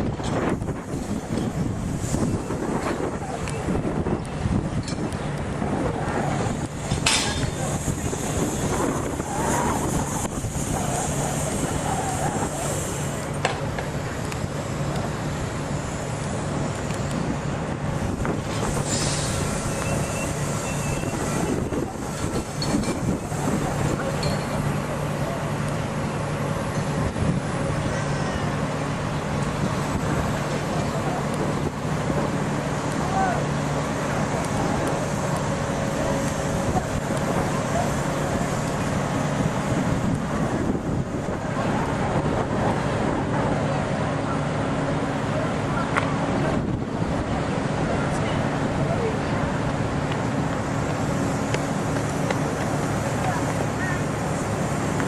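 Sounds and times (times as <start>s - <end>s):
diesel locomotive engine hum: 0.0s - 55.0s
outdoor noise: 0.0s - 55.0s
train rumble: 0.0s - 55.0s
air hiss: 6.4s - 13.4s, 18.0s - 24.8s.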